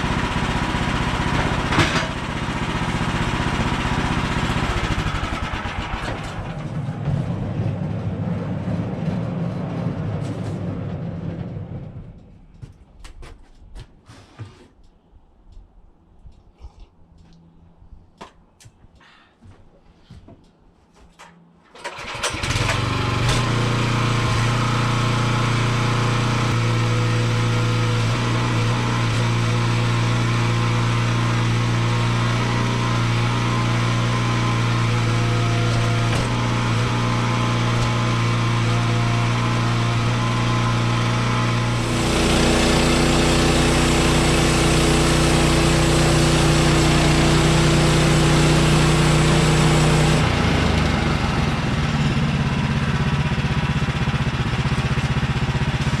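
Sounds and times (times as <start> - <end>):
small gasoline engine running: 0.0 - 7.4, 21.8 - 56.0.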